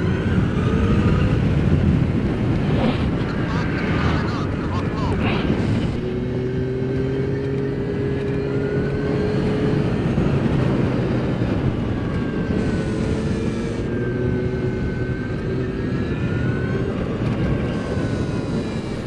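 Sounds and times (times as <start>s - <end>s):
steady rushing noise: 0.0s - 7.6s.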